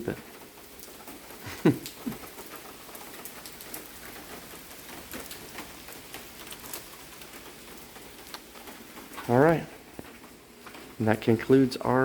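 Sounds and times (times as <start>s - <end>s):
faint steady hiss: 0.0s - 12.0s
light ticks: 8.2s - 8.7s.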